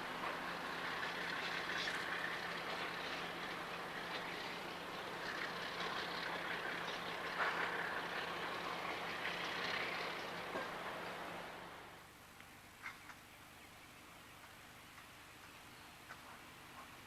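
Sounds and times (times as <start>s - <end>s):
train wheels rolling on rail: 0.0s - 11.7s
low engine hum: 0.0s - 17.0s.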